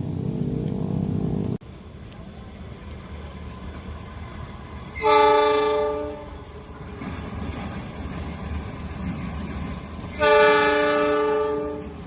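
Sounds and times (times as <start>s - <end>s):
train horn blast: 5.0s - 6.4s, 10.2s - 12.0s.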